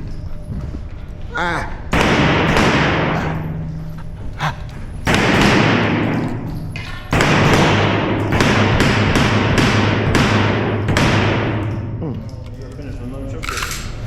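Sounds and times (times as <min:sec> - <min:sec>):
muffled pistol shots: 0:01.9 - 0:03.2, 0:05.1 - 0:06.4, 0:07.1 - 0:12.0.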